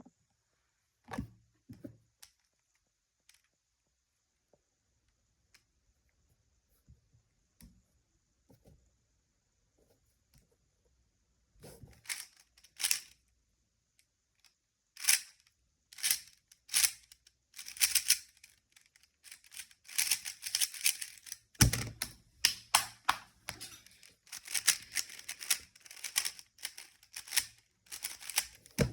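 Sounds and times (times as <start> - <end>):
puzzle cube clicking: 12.0 - 13.2, 16.0 - 23.3, 23.9 - 28.9.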